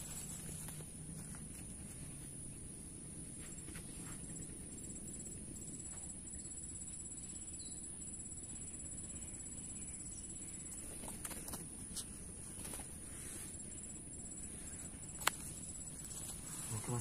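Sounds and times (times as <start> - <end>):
bird chirp: 3.8 - 12.3
insects shrilling: 10.7 - 17.0.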